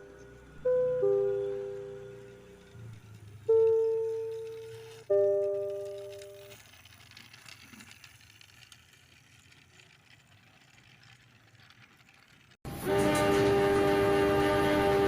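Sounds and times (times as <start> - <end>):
train horn chord: 12.7 - 15.0.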